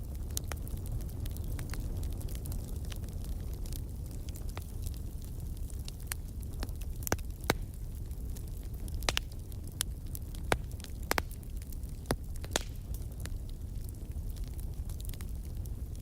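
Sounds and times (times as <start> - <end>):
campfire crackling and popping: 0.0 - 16.0
low rumble of flames: 0.0 - 16.0.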